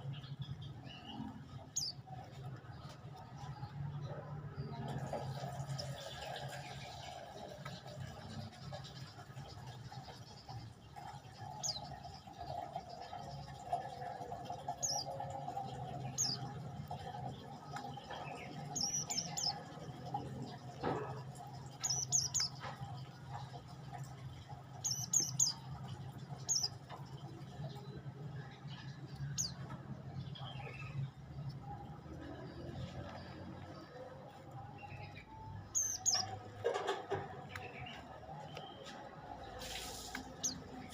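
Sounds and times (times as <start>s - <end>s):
songbird chirping: 0.0s - 40.9s.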